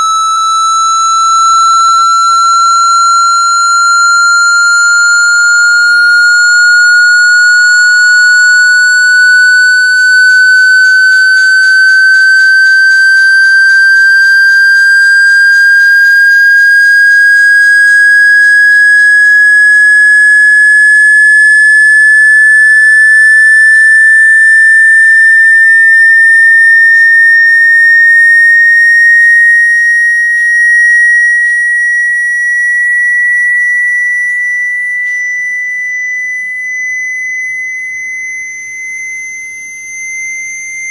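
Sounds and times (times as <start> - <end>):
rising electronic sweep tone: 0.0 - 22.3.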